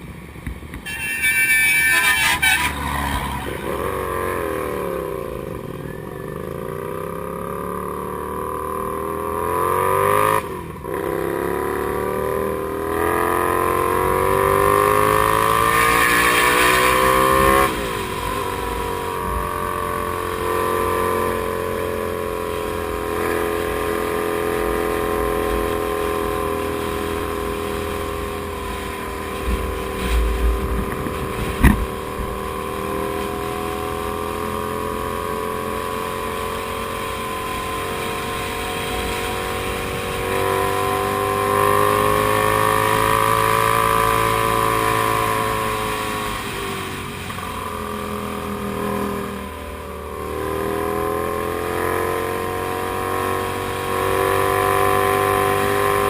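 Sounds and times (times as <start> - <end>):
motorcycle engine running: 0.0 - 56.0
low thumps and sharp knock: 29.4 - 32.4.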